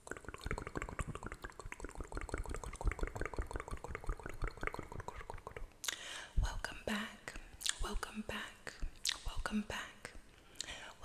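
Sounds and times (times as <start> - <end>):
wet mouth clicks and pops: 0.0 - 6.0, 7.3 - 8.0, 8.7 - 9.4, 10.1 - 10.8.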